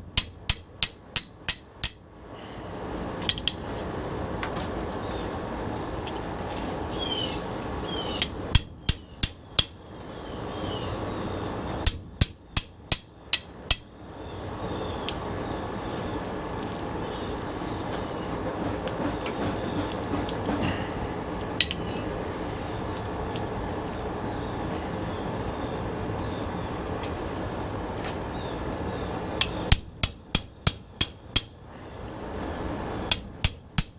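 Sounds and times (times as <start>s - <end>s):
hammer striking metal: 0.0s - 2.1s, 3.3s - 3.6s, 8.2s - 9.8s, 11.8s - 13.9s, 29.4s - 31.6s, 33.1s - 33.9s.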